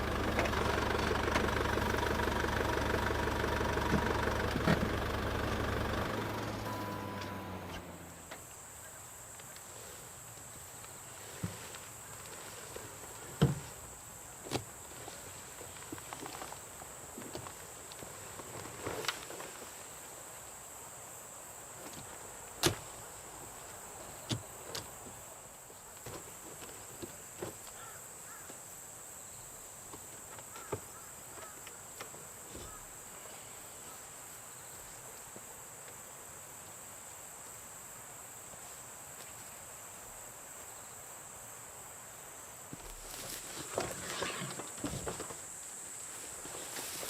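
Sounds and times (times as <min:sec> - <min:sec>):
high-pitched insect chorus: 0:06.7 - 0:47.0.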